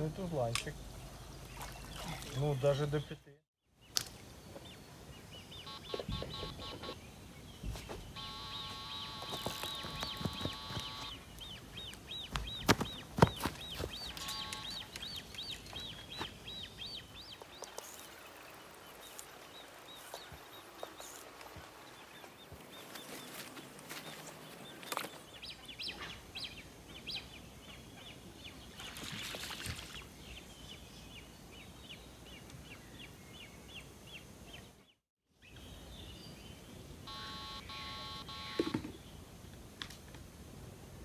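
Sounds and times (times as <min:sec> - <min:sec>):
bird chirping: 0:00.0 - 0:39.2
open-air background hiss: 0:00.0 - 0:41.0
electronic beeps: 0:08.2 - 0:11.2, 0:37.1 - 0:38.9.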